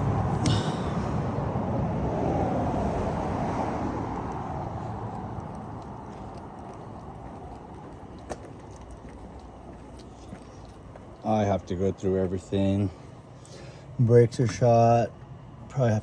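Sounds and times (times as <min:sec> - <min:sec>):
vehicle passing: 0:00.0 - 0:10.4.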